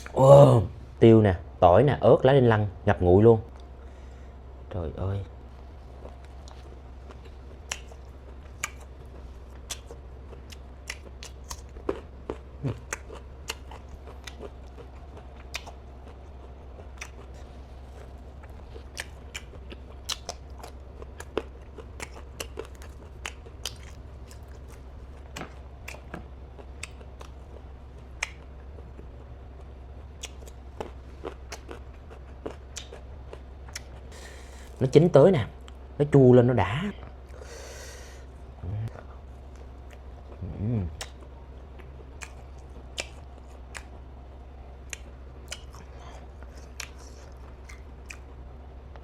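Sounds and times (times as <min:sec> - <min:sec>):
steady low hum: 0:00.0 - 0:49.0
chewing with sharp crunches: 0:05.3 - 0:35.0, 0:37.0 - 0:49.0
wet mouth smacks: 0:07.7 - 0:08.0, 0:08.6 - 0:08.9, 0:20.1 - 0:20.4, 0:28.2 - 0:28.5, 0:41.0 - 0:41.2, 0:42.2 - 0:43.9, 0:44.9 - 0:45.7.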